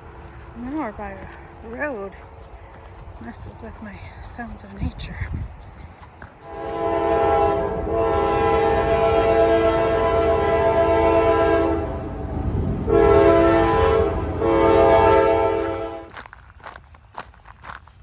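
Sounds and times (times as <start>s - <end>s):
low rumble: 0.0s - 16.2s
train horn chord: 6.4s - 16.1s.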